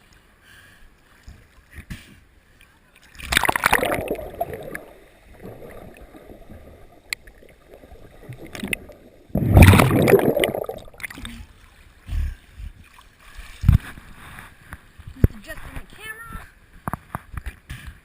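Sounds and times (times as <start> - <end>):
loud rushing splash: 3.3 - 6.4, 8.4 - 11.1.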